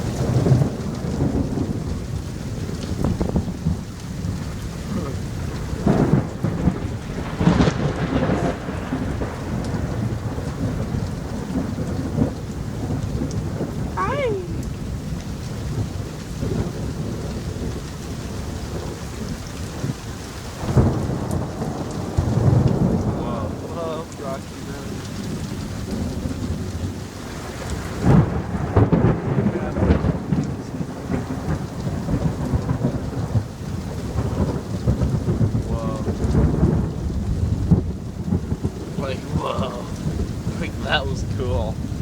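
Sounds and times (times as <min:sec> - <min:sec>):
heavy rain pouring: 0:00.0 - 0:42.0
thunder rumbling: 0:00.0 - 0:42.0.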